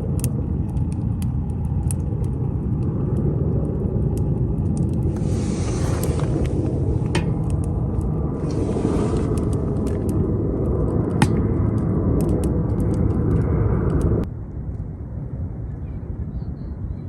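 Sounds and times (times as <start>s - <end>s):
wood fire crackling in stove: 0.0s - 14.3s.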